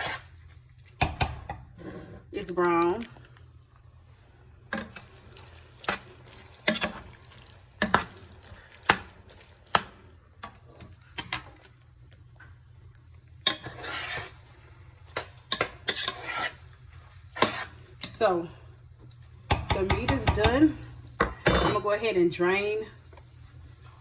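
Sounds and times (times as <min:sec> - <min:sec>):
utensil knocking against a pan: 0:19.5 - 0:20.6.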